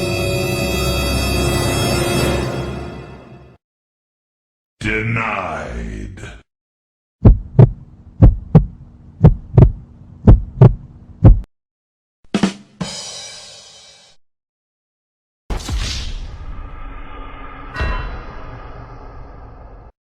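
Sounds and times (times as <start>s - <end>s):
heartbeat double thumps: 7.2s - 11.5s
short hit: 15.5s - 19.9s.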